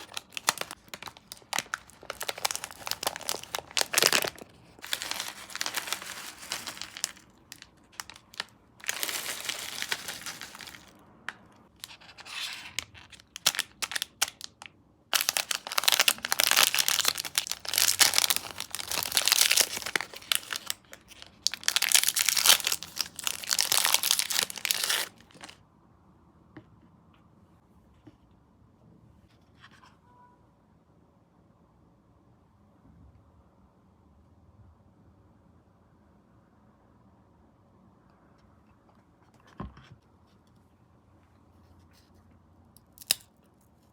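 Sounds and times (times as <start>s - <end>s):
packaging being torn open: 0.0s - 11.0s, 11.8s - 25.6s, 42.8s - 43.3s
sweet packaging crinkling: 0.0s - 25.6s, 42.8s - 43.9s.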